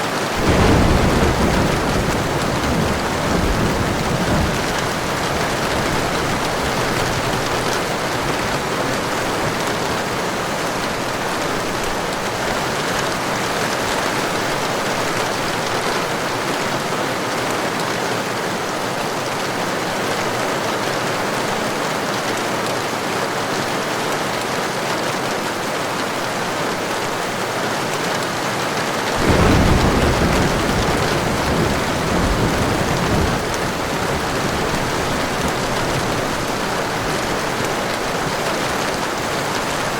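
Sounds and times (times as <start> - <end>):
heavy rain: 0.0 - 39.9
thunder rumbling: 0.4 - 15.6, 29.2 - 39.9.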